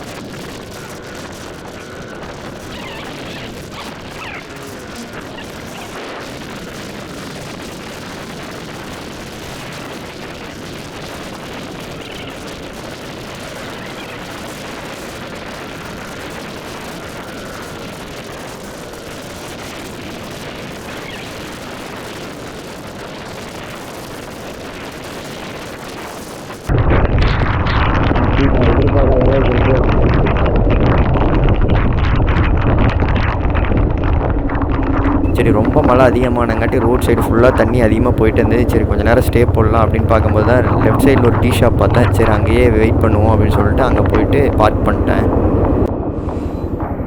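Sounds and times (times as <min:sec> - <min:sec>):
heavy rain hissing: 0:00.0 - 0:08.6, 0:35.3 - 0:45.9
dull rumble: 0:00.0 - 0:18.7, 0:26.7 - 0:47.0.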